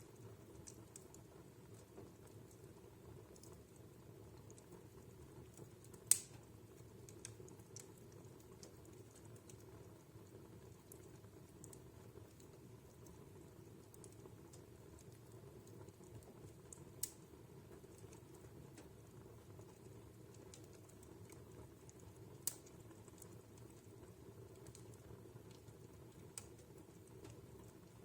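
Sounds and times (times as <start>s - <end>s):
fire crackling: 0.0s - 28.0s
sharp wood fire pops: 5.9s - 8.8s, 16.7s - 17.3s, 22.4s - 22.7s.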